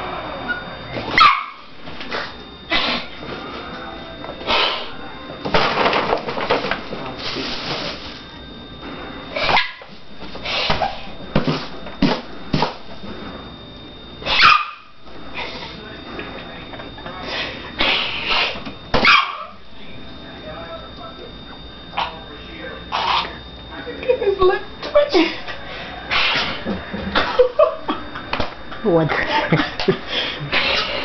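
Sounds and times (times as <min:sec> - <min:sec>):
dog crying sharply: 0:01.2 - 0:01.6, 0:09.4 - 0:09.8, 0:14.2 - 0:14.9, 0:19.0 - 0:19.5.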